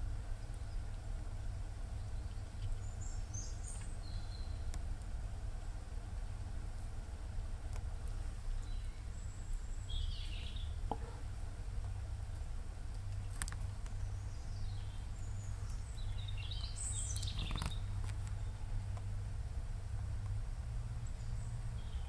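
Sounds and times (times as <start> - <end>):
faint ticks: 11.8 - 14.0.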